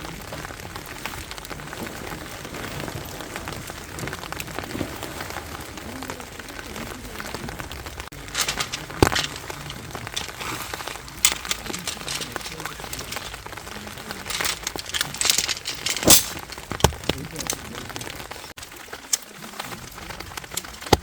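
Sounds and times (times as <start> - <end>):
rain pattering on tent fabric: 0.0 - 21.0.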